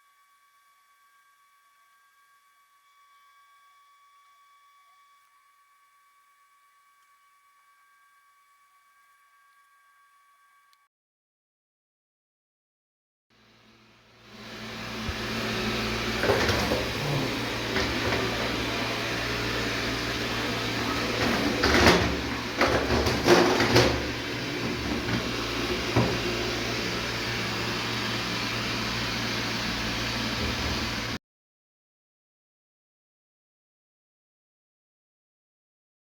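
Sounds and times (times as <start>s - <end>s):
robot vacuum motor hum: 14.2s - 31.2s
knocks and rattles: 20.4s - 26.4s.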